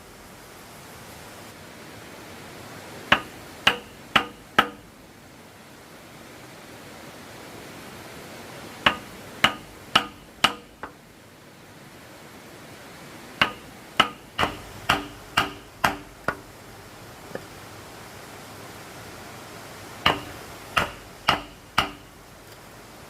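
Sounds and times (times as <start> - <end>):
hammer blows on wood: 3.1 - 4.9, 8.9 - 11.0, 13.4 - 16.5, 20.0 - 22.2.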